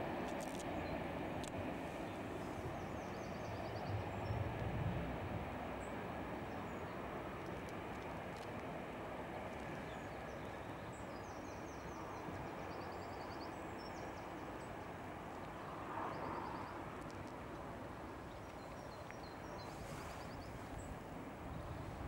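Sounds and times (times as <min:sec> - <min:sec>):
distant train rushing: 0:01.0 - 0:13.0
small songbird chirping: 0:02.1 - 0:04.4, 0:09.5 - 0:15.0, 0:18.0 - 0:21.8.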